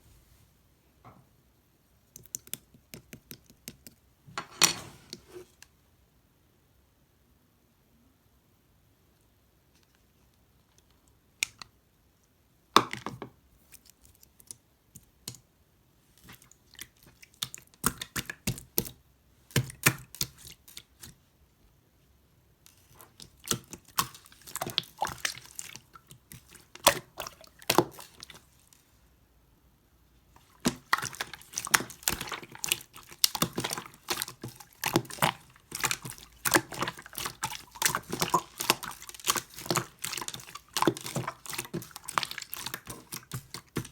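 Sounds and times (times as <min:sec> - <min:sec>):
slime squished clicking and popping: 0:30.6 - 0:43.9.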